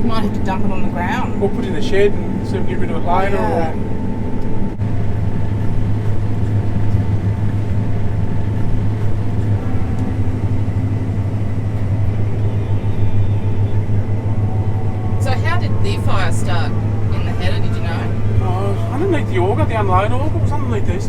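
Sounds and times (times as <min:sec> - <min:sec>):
combine harvester cab drone: 0:00.0 - 0:21.0.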